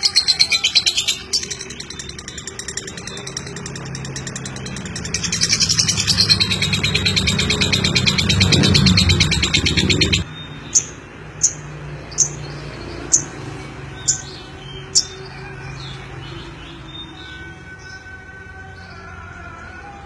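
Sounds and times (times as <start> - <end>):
sharp high chirps: 0.0 - 11.6.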